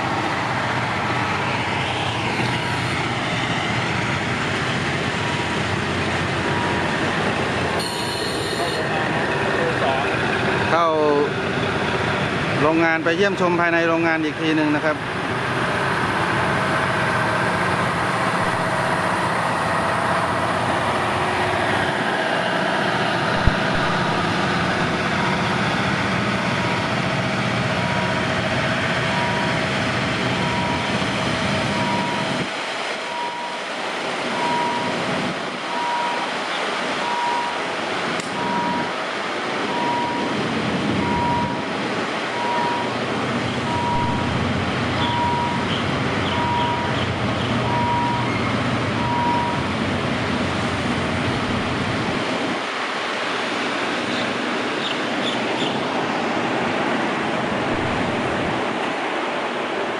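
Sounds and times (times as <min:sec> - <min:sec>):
vehicle engine rumble: 0:00.0 - 0:59.9
short electronic beeps: 0:07.8 - 0:08.8, 0:41.0 - 0:41.6, 0:42.4 - 0:42.9, 0:43.7 - 0:45.7, 0:46.3 - 0:47.0.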